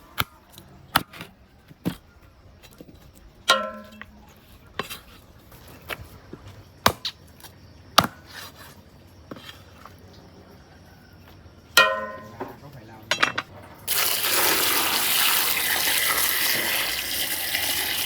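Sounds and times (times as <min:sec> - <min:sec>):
ringing metallic clank: 0:03.5 - 0:04.1, 0:11.8 - 0:13.5.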